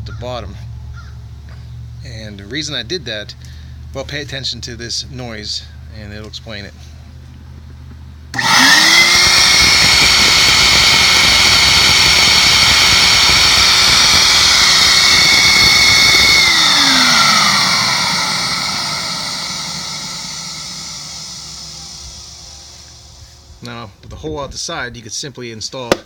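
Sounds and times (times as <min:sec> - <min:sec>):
vacuum motor high whine: 0:08.3 - 0:23.6.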